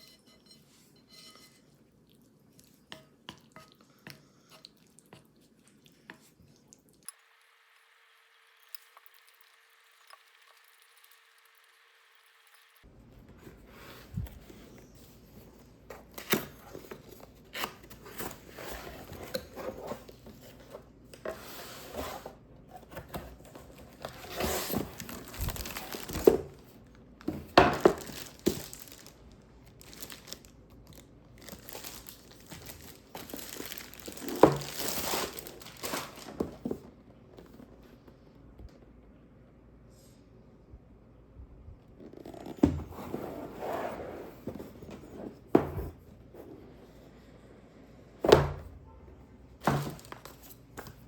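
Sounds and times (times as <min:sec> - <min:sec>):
paper or plastic crinkling: 0:23.7 - 0:36.8, 0:49.6 - 0:51.0.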